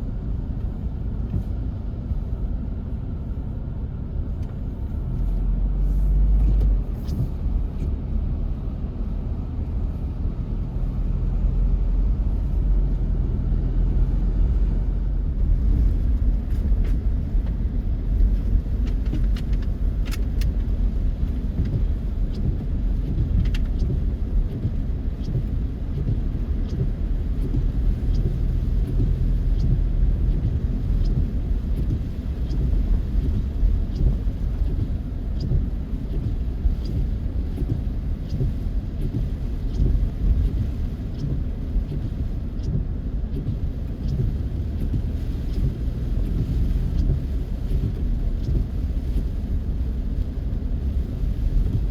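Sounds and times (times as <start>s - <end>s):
car road and engine rumble: 0.0s - 51.9s
faint ticks: 16.1s - 49.6s.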